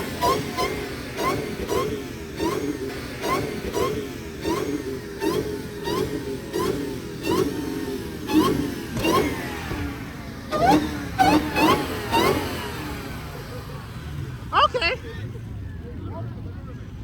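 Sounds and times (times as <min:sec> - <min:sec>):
car engine revving in quick blips: 0:00.0 - 0:14.9.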